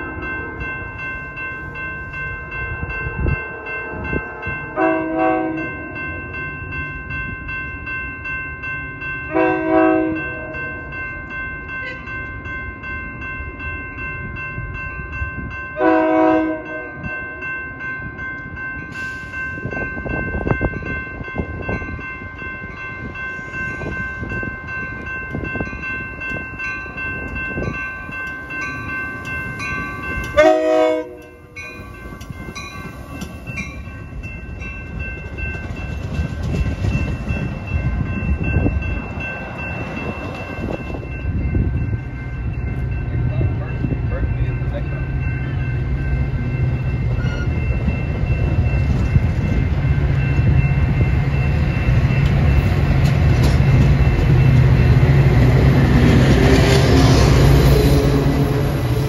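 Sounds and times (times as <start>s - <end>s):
train horn blasts: 4.8s - 5.7s, 9.3s - 10.7s, 15.8s - 17.0s, 30.3s - 31.6s
train wheels rumbling on rail: 13.1s - 59.0s.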